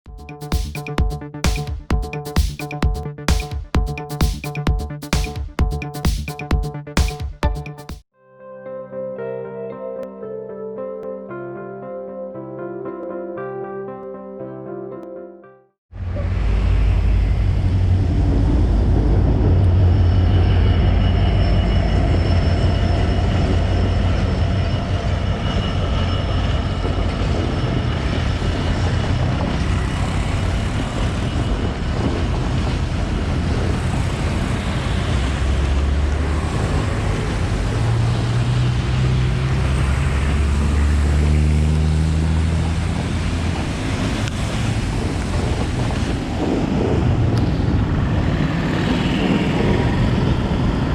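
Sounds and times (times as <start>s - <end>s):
steady high whine: 16.0s - 35.6s
diesel locomotive engine drone: 16.0s - 50.9s.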